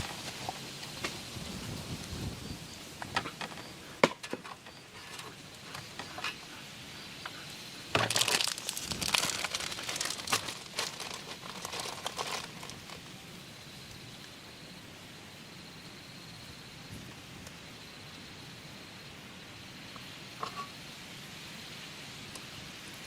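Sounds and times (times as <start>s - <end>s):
crinkly material crumpling: 8.0s - 13.2s.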